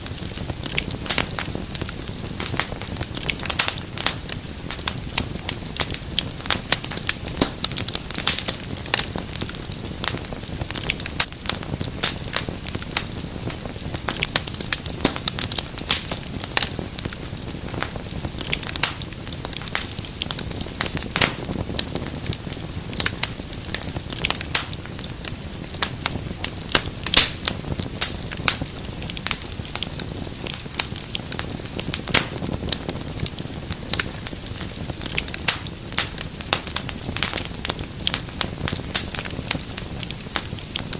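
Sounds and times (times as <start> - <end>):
low hiss of burning: 0.0 - 40.9
wood fire crackling: 0.0 - 40.9.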